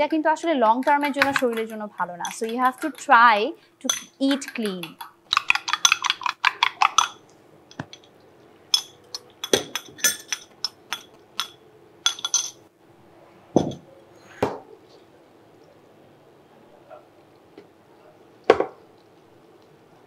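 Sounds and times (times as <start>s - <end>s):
utensil clinking against dishes: 0.8s - 3.1s, 3.8s - 12.6s.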